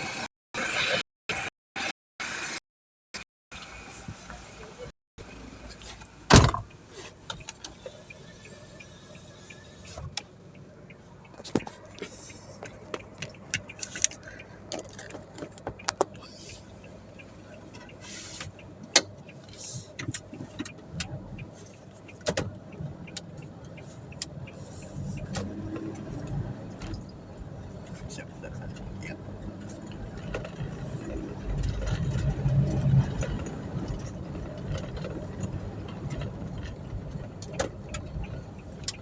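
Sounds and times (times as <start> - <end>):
sharp clicks and knocks: 11.2 - 16.2, 22.1 - 23.4.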